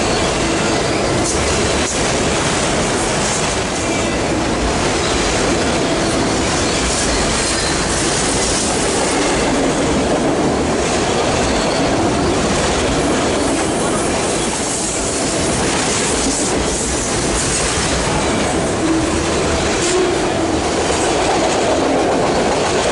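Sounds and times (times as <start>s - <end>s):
train wheels rolling on rail: 0.0s - 22.9s
wheel squeal: 6.0s - 8.1s, 11.4s - 12.4s.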